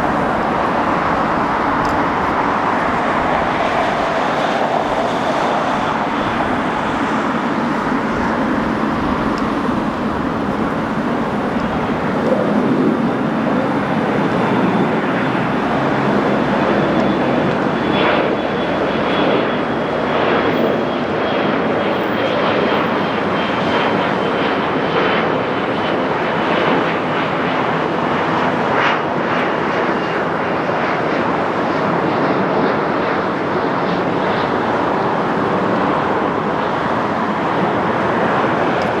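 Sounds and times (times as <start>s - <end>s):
thin high whine: 0.0s - 18.4s
jet engines roaring: 0.0s - 39.0s.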